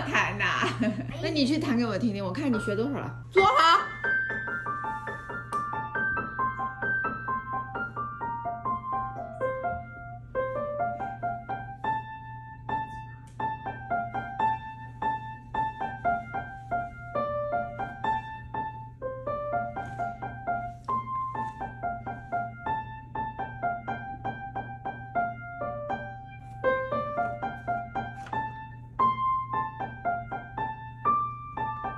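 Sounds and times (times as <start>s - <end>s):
low steady hum: 0.0s - 31.9s
child playing piano melody: 3.4s - 31.9s.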